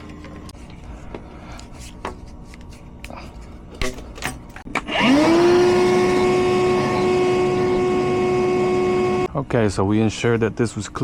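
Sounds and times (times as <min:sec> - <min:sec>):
shop vacuum motor whine: 0:04.7 - 0:09.3.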